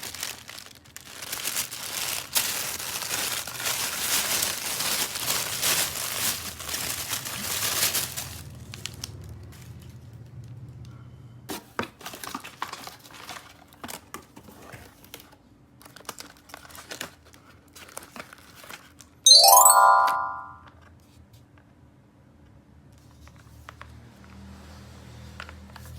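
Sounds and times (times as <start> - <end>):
plastic packaging crinkling and tearing: 0.0 - 9.0, 15.8 - 17.2
loud bright chime: 19.3 - 20.6.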